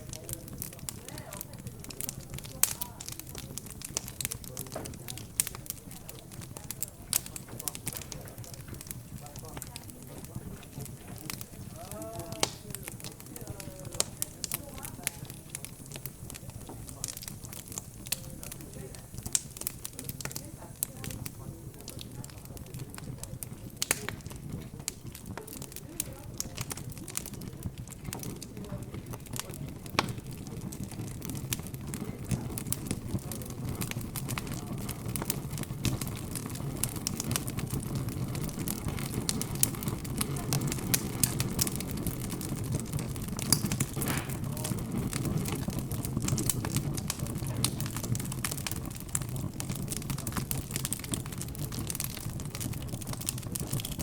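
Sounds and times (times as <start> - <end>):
background chatter: 0.0 - 54.0
wood fire crackling and popping: 0.0 - 54.0.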